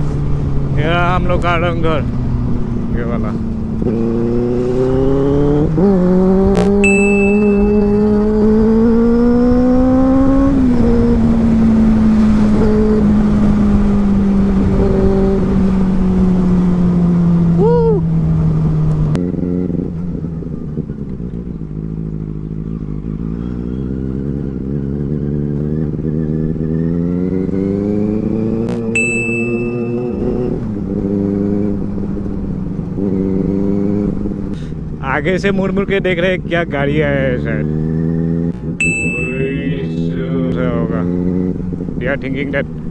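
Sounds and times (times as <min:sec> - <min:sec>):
motorcycle engine revving: 0:00.0 - 0:42.9
brief high chirp: 0:06.7 - 0:08.0, 0:28.8 - 0:30.4, 0:38.8 - 0:39.8.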